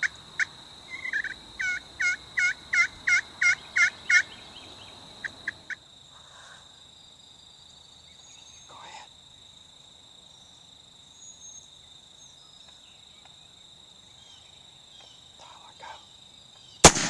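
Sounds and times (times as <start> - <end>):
wild turkey yelping: 0.0 - 4.5.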